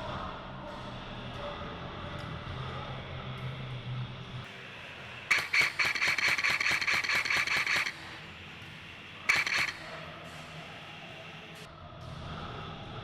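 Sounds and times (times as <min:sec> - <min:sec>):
airsoft gun firing bursts: 0:05.3 - 0:08.2, 0:09.3 - 0:10.0.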